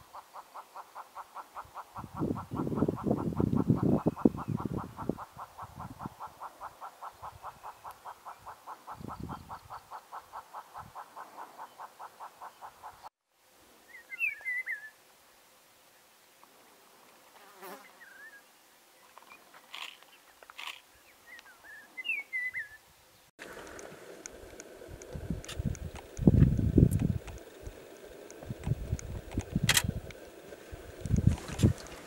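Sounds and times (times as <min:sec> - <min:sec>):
bird calling hollow clucks: 0:00.0 - 0:13.1
wind-like noise: 0:01.4 - 0:11.5, 0:23.4 - 0:32.0
bird singing high warbled phrases: 0:13.9 - 0:15.0, 0:21.0 - 0:22.8.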